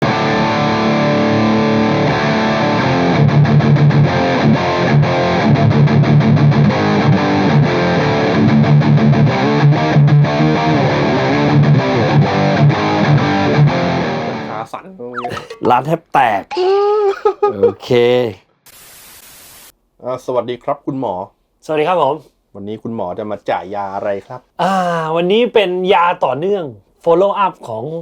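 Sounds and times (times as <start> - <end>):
distorted electric guitar riff: 0.0 - 14.4.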